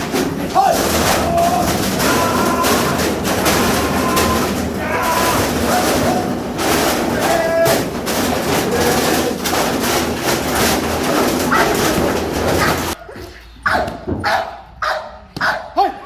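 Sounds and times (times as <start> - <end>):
dog barking and whining: 11.1 - 11.8, 13.6 - 15.7.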